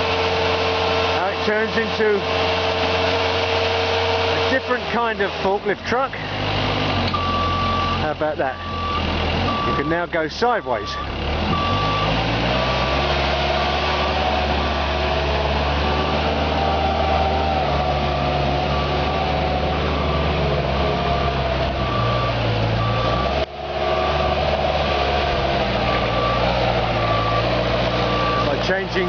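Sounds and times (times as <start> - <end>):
forklift engine running: 0.0 - 29.0
warning alarm beeping: 7.1 - 13.0, 18.6 - 24.6.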